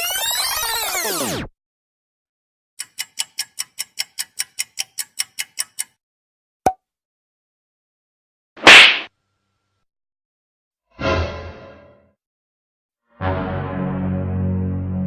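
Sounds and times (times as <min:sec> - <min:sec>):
clock ticking: 0:02.8 - 0:06.0.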